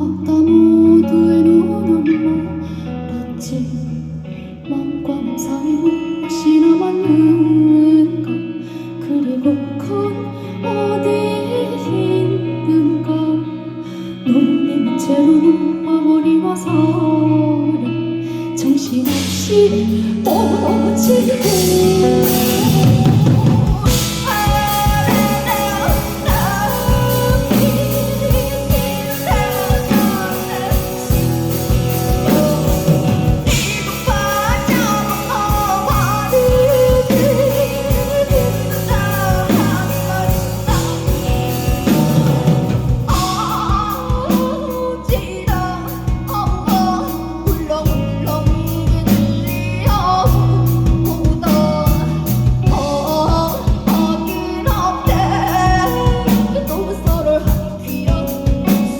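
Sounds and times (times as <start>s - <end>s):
woman singing: 0.0s - 58.9s
live band playing: 18.8s - 58.9s
drums beat: 21.3s - 46.9s.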